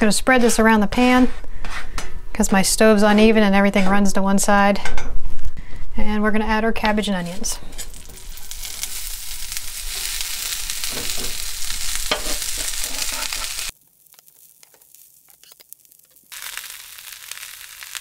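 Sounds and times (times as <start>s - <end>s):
vegetables sizzling in grease: 7.7s - 18.0s.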